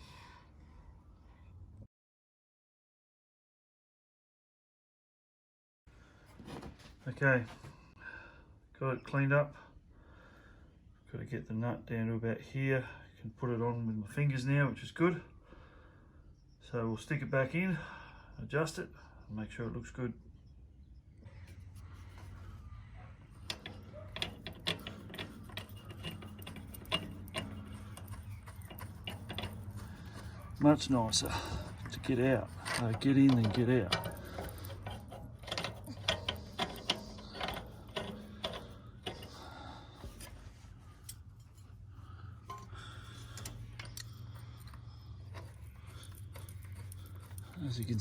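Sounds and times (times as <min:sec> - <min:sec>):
metallic clinks of hand tools: 0:23.4 - 0:40.3.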